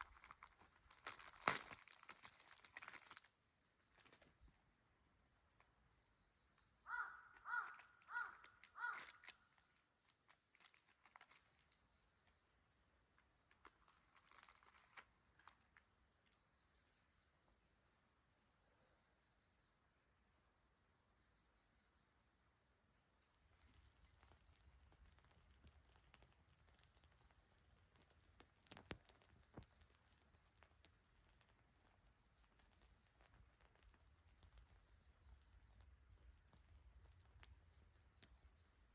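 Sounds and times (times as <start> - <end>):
insects chirping in a trill: 0.0 - 38.9
crow cawing: 6.9 - 9.3
faint clicks: 7.3 - 11.8, 23.4 - 38.9.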